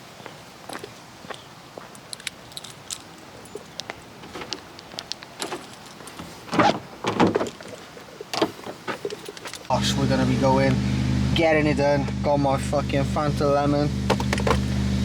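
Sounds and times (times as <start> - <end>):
light clicks and rattles: 1.9 - 9.7
knocks and rustles: 2.0 - 9.7, 14.1 - 14.7.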